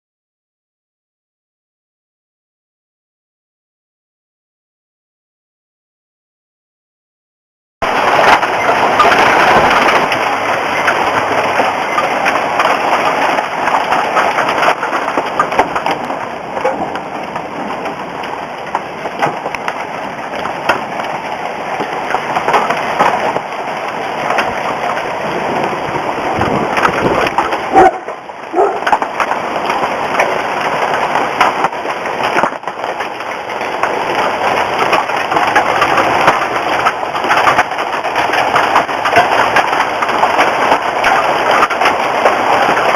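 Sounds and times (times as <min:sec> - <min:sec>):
hail pelting hard surfaces: 0:07.8 - 0:42.9.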